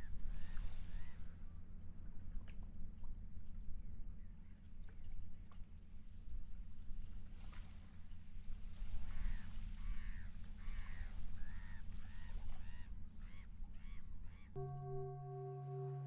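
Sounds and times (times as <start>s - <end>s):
low rumble: 14.6s - 16.0s
singing bowl ringing: 14.6s - 16.0s.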